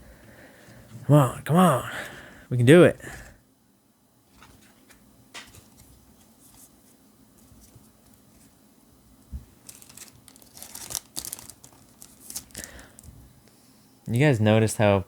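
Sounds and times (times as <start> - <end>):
foil wrapper tearing and crinkling: 9.6 - 13.1.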